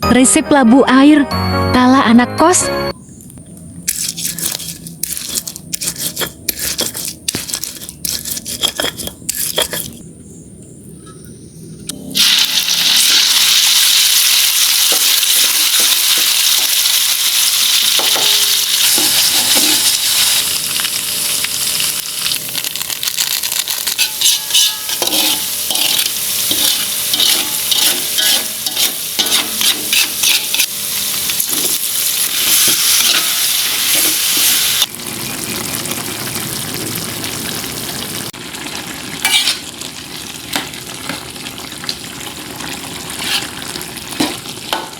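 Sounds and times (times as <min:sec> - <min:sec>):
utensil scraping and tapping pan: 0:03.9 - 0:10.0, 0:24.0 - 0:30.7
food sizzling in hot oil: 0:12.1 - 0:44.9.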